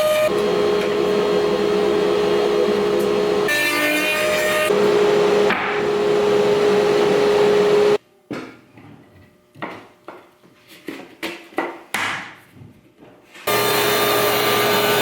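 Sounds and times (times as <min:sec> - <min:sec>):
power tool whining: 0:13.5 - 0:15.0.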